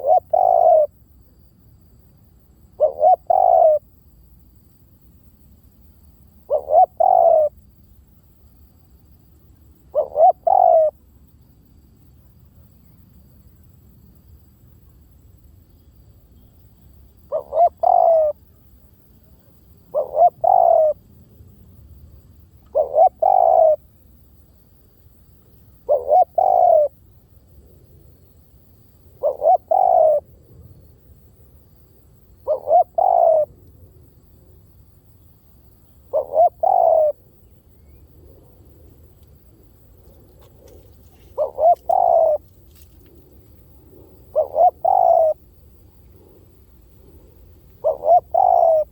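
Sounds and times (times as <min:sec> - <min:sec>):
dove cooing: 0:00.0 - 0:00.9, 0:02.8 - 0:03.8, 0:06.4 - 0:07.6, 0:09.9 - 0:11.0, 0:17.2 - 0:18.4, 0:19.9 - 0:21.0, 0:22.7 - 0:23.8, 0:25.8 - 0:27.0, 0:29.2 - 0:30.3, 0:32.4 - 0:33.6, 0:36.0 - 0:37.3, 0:40.2 - 0:48.9.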